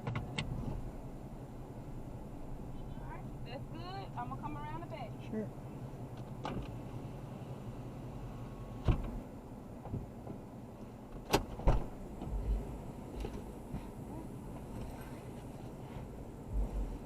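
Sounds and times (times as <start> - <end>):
car door latch clicks: 0.0 - 0.6, 6.2 - 6.8, 8.8 - 9.2, 11.1 - 11.9
car door thump: 8.8 - 9.2, 11.1 - 12.6.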